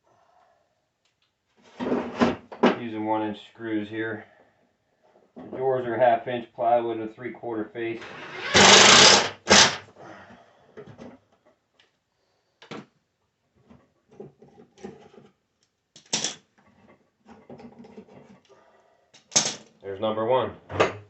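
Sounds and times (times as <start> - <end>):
drill driving a screw: 8.0 - 9.8.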